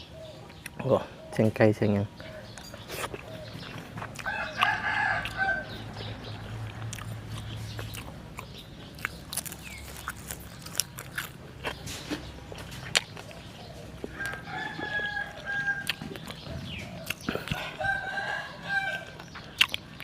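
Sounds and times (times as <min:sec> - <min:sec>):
person chewing food: 0:02.4 - 0:20.0
rooster crowing: 0:04.2 - 0:06.1, 0:14.1 - 0:19.2
mouth clicks: 0:19.2 - 0:20.0.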